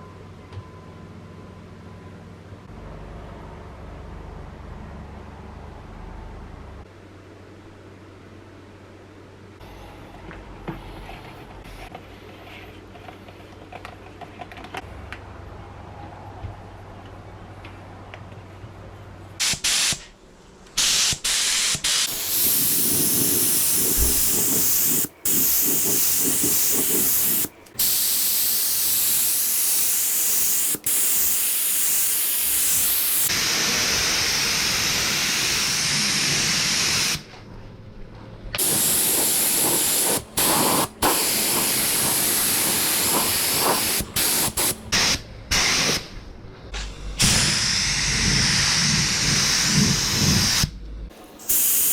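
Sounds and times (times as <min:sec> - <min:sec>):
spray gun hissing in bursts: 0:19.4 - 0:20.1, 0:20.8 - 0:37.3, 0:38.6 - 0:46.0, 0:47.2 - 0:51.9.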